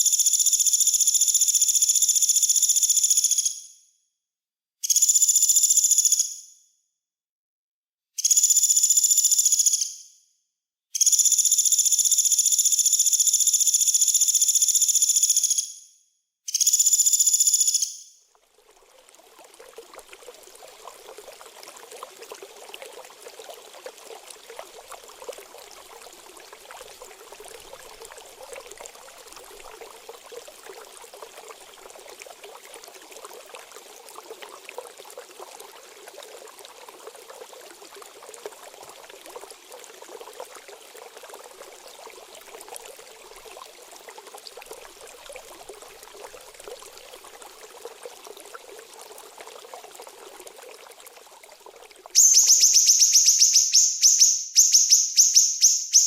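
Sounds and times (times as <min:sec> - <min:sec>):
trickling water: 0:16.5 - 0:56.0
songbird singing: 0:52.2 - 0:56.0.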